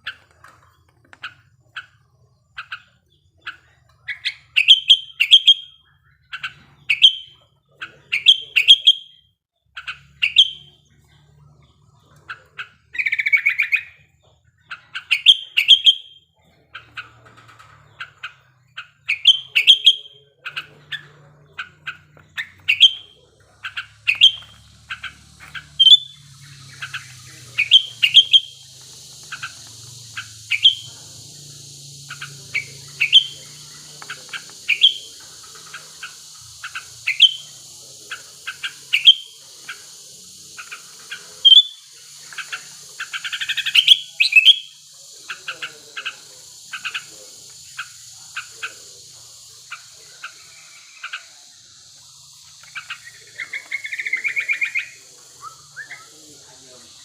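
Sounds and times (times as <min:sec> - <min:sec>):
bird chirping and chattering: 0:00.0 - 0:57.0
steady high hiss: 0:18.9 - 0:57.0.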